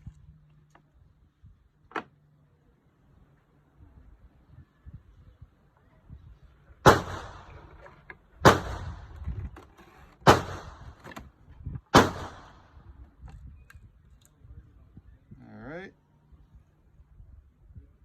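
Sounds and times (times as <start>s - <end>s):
loud sharp bangs: 6.8s - 7.8s, 8.4s - 9.2s, 10.2s - 11.0s, 11.9s - 12.8s.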